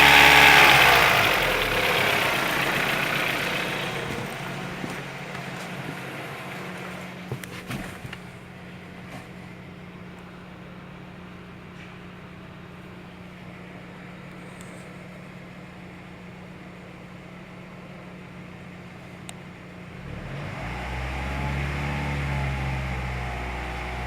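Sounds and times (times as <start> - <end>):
deep engine drone: 0.0 - 7.4, 19.8 - 24.0
car engine humming: 0.0 - 14.7.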